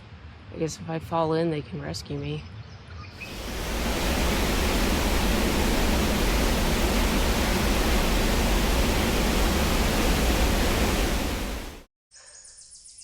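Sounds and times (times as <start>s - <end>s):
water rushing through spillway: 3.2s - 11.9s.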